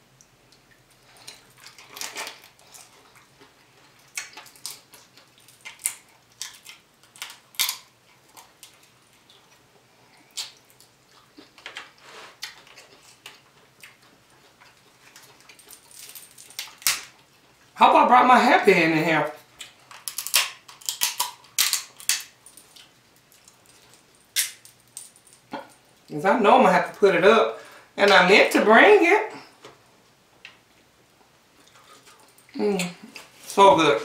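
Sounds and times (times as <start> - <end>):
wet chewing and lip-smacking: 0.5 - 15.9.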